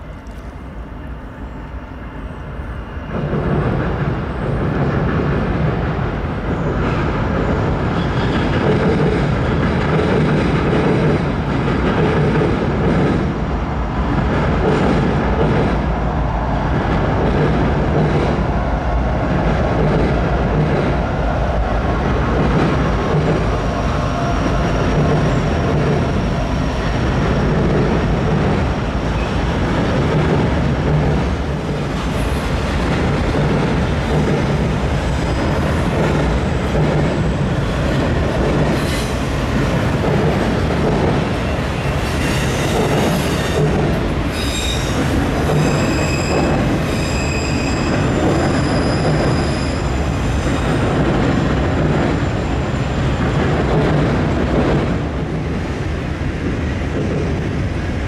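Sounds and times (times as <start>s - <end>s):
train wheels rumbling and clattering: 2.2s - 58.0s
wheel squeal: 44.3s - 50.1s.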